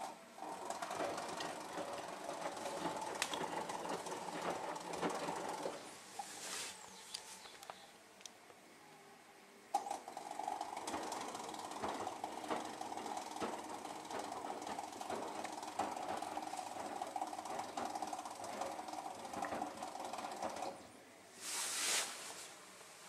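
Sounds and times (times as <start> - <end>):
washing machine humming: 0.0 - 7.0, 9.8 - 23.0
mechanical clicks and knocks: 9.8 - 20.8.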